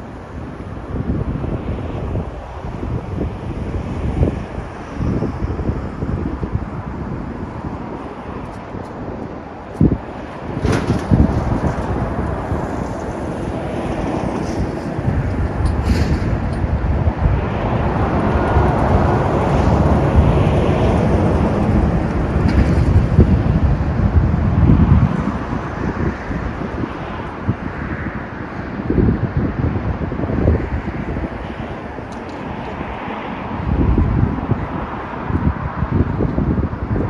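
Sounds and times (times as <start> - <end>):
highway traffic: 0.0 - 37.0
wind buffeting microphone: 0.0 - 37.0
vehicle passing: 9.8 - 27.5.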